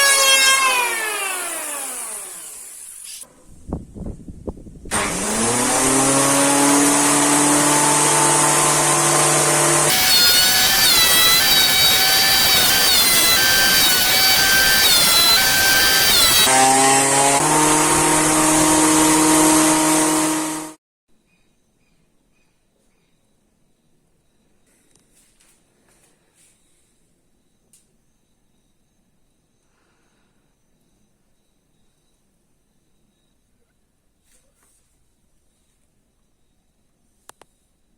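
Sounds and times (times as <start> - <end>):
electric planer running: 0.0 - 3.0, 4.9 - 20.8
planer cutting wood: 0.0 - 3.2, 4.9 - 20.8.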